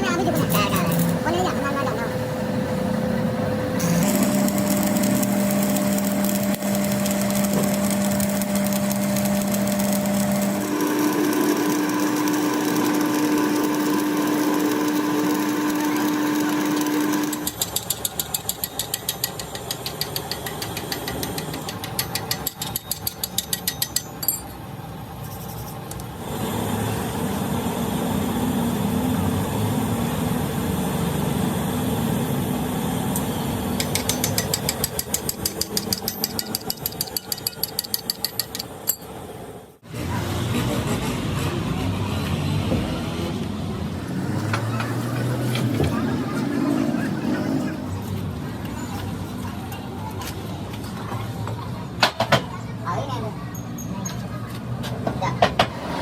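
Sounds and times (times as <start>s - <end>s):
machine shop machinery humming: 0.0s - 51.9s.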